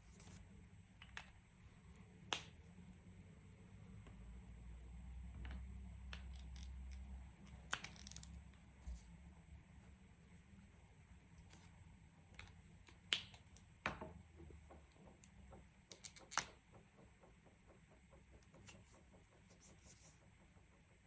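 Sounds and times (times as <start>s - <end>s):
clicks and taps of coloring supplies: 1.0s - 2.8s, 5.2s - 8.8s, 11.4s - 21.0s.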